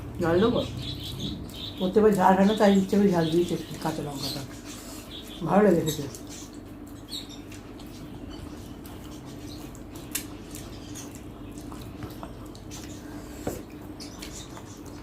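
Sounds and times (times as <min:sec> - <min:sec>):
steady low hum: 0:00.0 - 0:15.0
person chewing: 0:06.2 - 0:15.0.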